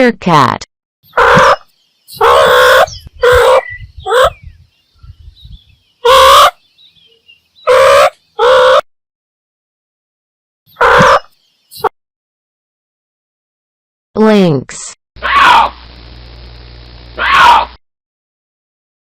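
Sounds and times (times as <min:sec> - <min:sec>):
faint high bird chirps: 0:01.0 - 0:08.4, 0:10.7 - 0:11.9
meerkat calls: 0:01.1 - 0:04.4, 0:06.0 - 0:06.6, 0:07.6 - 0:08.8, 0:10.7 - 0:11.9.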